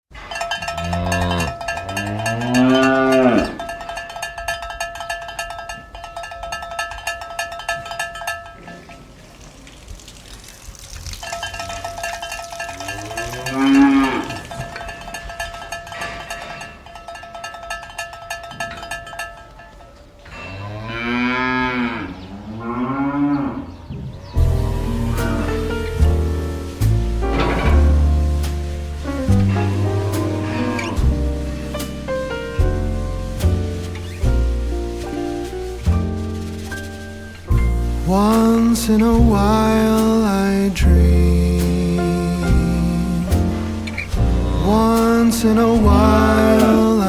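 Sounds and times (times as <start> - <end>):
cowbells clinking: 0.1 - 9.7, 11.0 - 23.4, 24.3 - 47.0
cows mooing: 0.6 - 3.8, 12.5 - 15.2, 20.2 - 32.5, 42.0 - 47.0.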